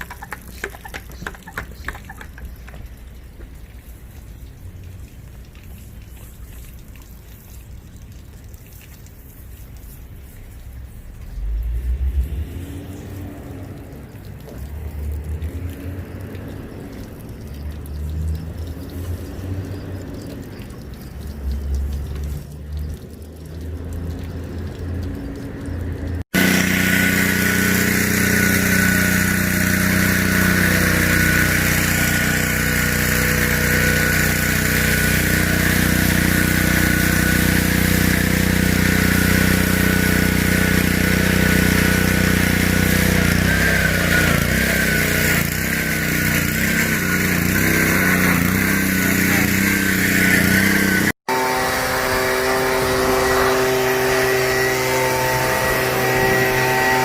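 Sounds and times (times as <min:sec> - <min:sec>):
pressure washer motor whining: 0:00.0 - 0:02.8, 0:26.3 - 0:57.0.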